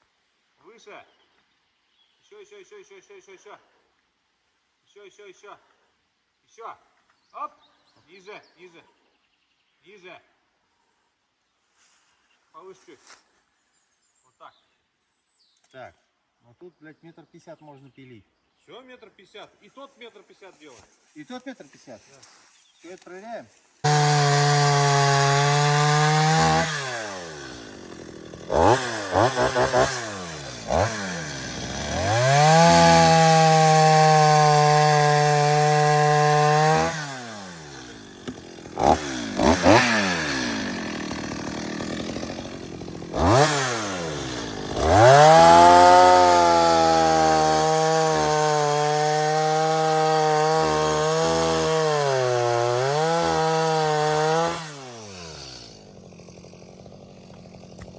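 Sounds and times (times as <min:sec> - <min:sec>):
chainsaw revving and idling: 0:23.8 - 0:57.9.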